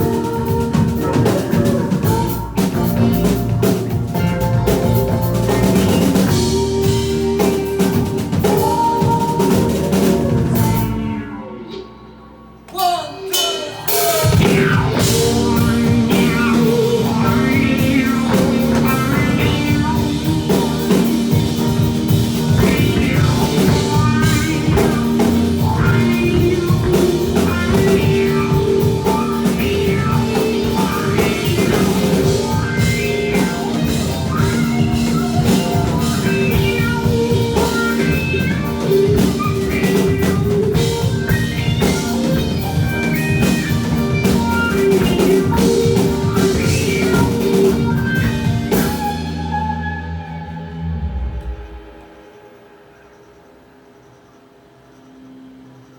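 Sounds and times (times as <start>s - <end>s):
rock band playing: 0.0s - 52.3s.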